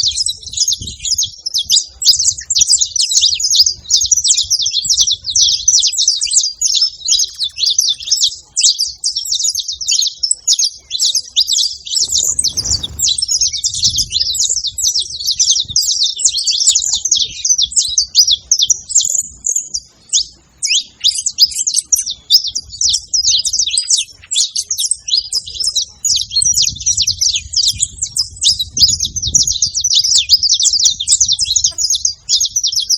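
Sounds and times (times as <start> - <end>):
finch singing high chirps: 0.0 - 32.9
soft low rumble: 11.8 - 19.4.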